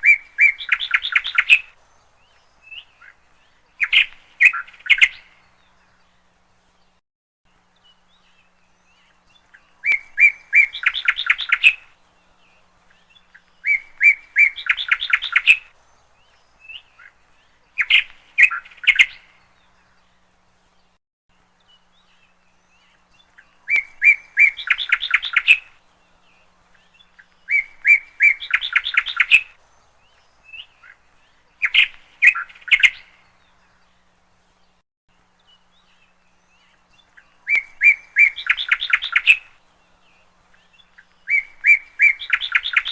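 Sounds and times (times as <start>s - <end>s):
bird trilling: 0.0s - 1.8s, 3.8s - 5.3s, 9.8s - 11.9s, 13.3s - 15.7s, 17.8s - 19.3s, 23.4s - 25.8s, 27.2s - 29.6s, 31.6s - 33.2s, 37.2s - 39.6s, 41.0s - 42.9s.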